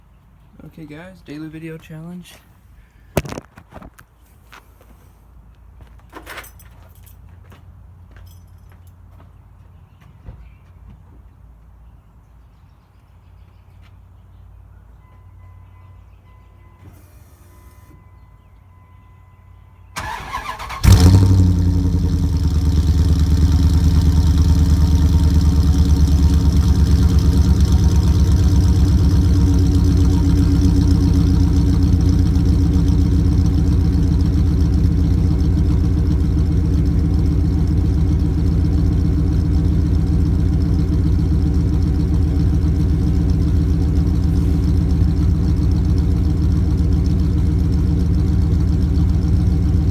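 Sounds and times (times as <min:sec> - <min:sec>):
starter cranking: 0:20.0 - 0:22.5
car engine idling: 0:20.0 - 0:49.9.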